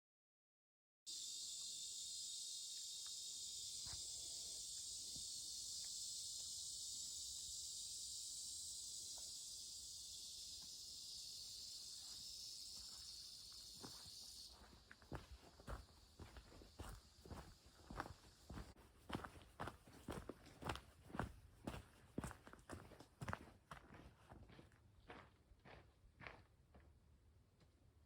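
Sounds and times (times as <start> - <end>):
high-pitched insect chorus: 1.1 - 21.2.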